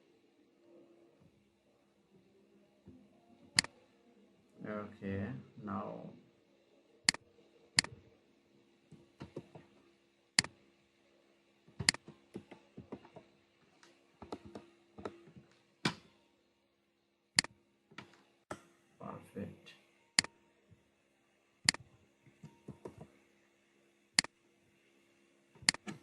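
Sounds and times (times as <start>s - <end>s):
faint electrical hum: 0.0s - 26.0s
computer mouse clicks: 11.8s - 12.0s, 25.6s - 26.0s.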